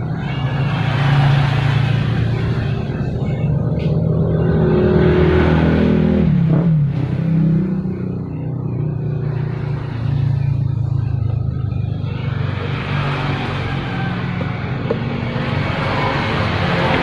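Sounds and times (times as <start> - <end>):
small engine revving: 0.0 - 17.0.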